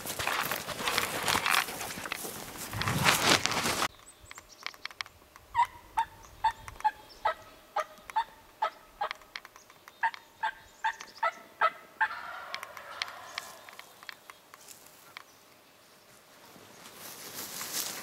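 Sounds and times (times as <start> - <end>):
turkey yelping: 5.5 - 9.2, 10.0 - 13.8.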